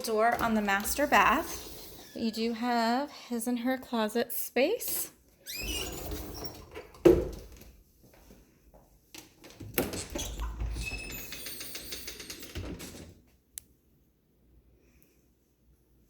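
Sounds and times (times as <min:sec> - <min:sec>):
door rattling and clicking: 0:00.0 - 0:02.2, 0:09.4 - 0:13.2.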